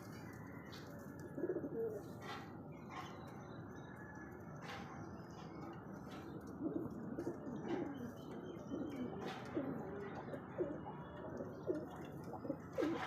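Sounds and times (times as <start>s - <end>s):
pigeons cooing: 1.2s - 3.0s, 6.1s - 13.0s.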